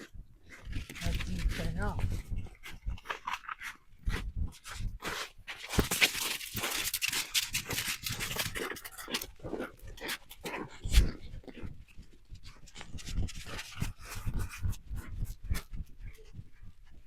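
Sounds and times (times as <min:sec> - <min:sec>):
footsteps crunching in snow: 0:00.8 - 0:09.6.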